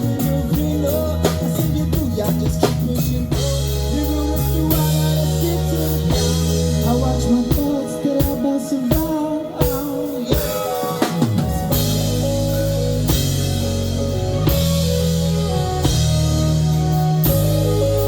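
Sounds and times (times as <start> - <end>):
heavy sustained bass line: 0.0 - 8.2, 11.6 - 18.0
drum kit hits: 0.0 - 18.0
live band playing: 0.0 - 18.0.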